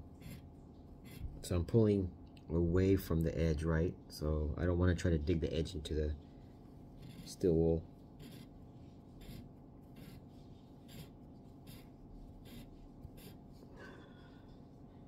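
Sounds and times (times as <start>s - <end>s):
steel wool rubbing razor blade: 9.2s - 10.2s, 10.8s - 13.4s.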